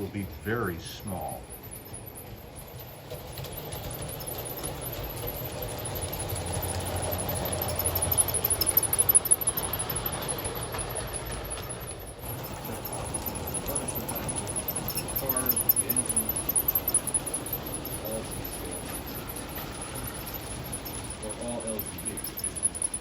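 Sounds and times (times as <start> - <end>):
model train wheels rattling: 0.0 - 23.0.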